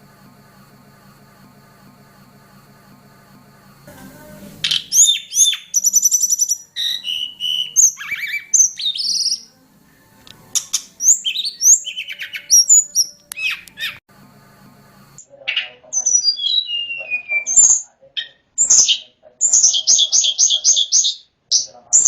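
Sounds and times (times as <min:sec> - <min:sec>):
songbird singing: 0:03.9 - 0:14.0, 0:15.5 - 0:22.0.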